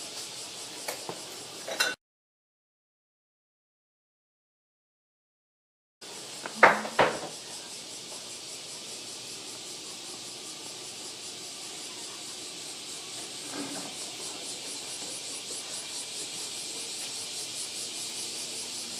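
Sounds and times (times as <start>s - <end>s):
cicadas shrilling: 0.0s - 2.0s, 6.0s - 18.9s
sharp knocks: 6.5s - 7.3s.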